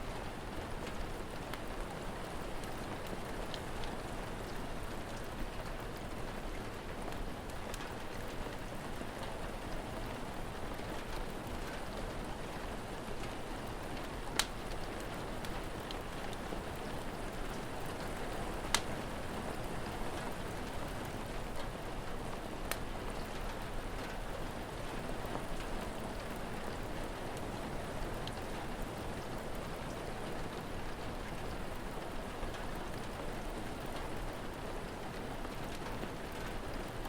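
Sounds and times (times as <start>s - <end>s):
steady rain: 0.0s - 37.0s
fire crackling and popping: 13.1s - 20.7s, 22.6s - 23.6s, 28.2s - 28.5s.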